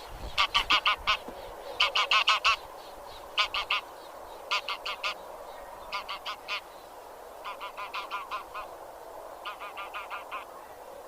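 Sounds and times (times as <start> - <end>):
faint background hiss: 0.0 - 11.0
geese honking: 0.4 - 2.6, 3.3 - 3.9, 4.5 - 5.2, 5.8 - 6.7, 7.4 - 8.7, 9.4 - 10.6.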